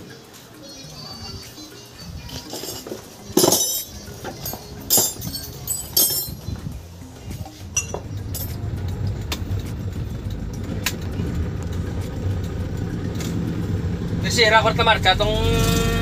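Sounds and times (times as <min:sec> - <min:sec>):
sharp metal clinks: 0:02.3 - 0:06.6, 0:07.8 - 0:08.6
car engine running: 0:08.1 - 0:16.0.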